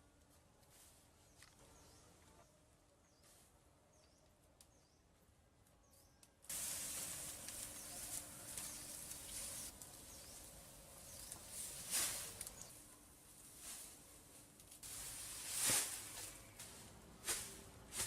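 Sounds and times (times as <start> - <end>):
small birds chirping: 1.2 - 12.9, 15.9 - 16.9.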